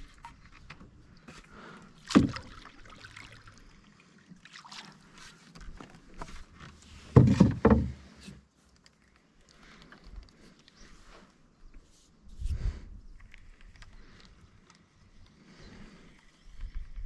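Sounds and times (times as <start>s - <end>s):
faint water sounds: 0.0s - 17.0s
knocks on canoe: 7.1s - 8.0s.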